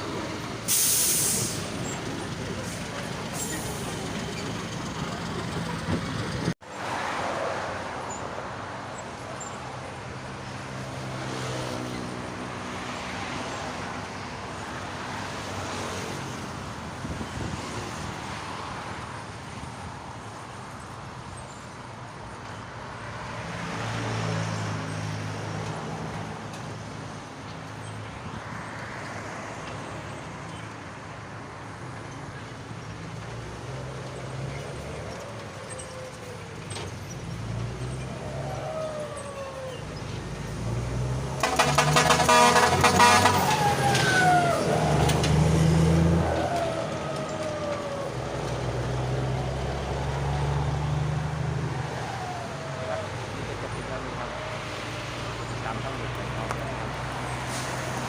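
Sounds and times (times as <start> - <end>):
bus diesel engine with loud exhaust: 0.0 - 6.6, 31.8 - 58.0.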